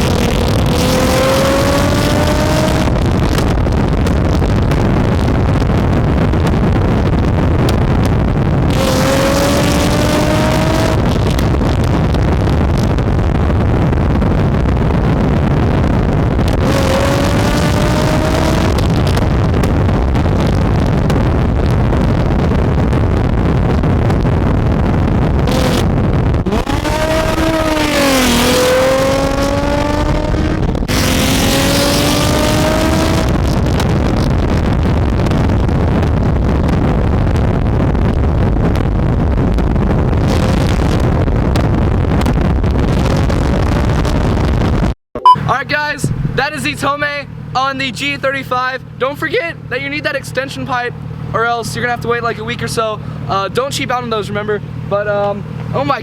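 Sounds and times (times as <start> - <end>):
car engine accelerating: 0.0 - 44.7, 45.4 - 56.0
road and wind noise: 0.0 - 56.0.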